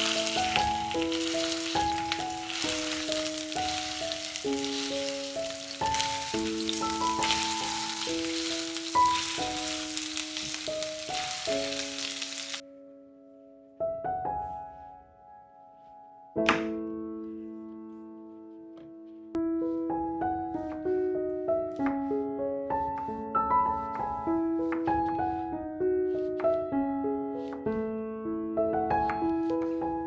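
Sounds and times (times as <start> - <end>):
food sizzling in frying pan: 0.0 - 12.6
soft piano music: 0.0 - 30.0.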